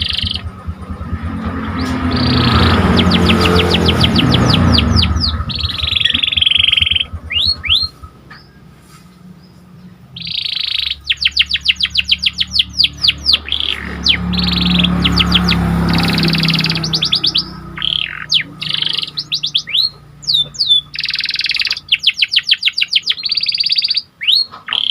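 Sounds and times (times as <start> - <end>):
low hum: 0.0 - 21.0
canary singing trills: 0.0 - 24.9.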